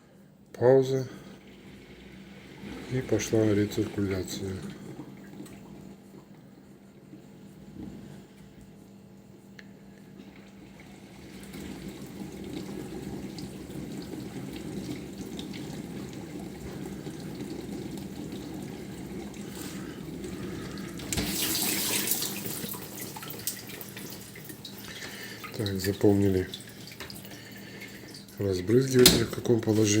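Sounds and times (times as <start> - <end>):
dishwasher spraying water: 1.2 - 5.7, 10.8 - 30.0.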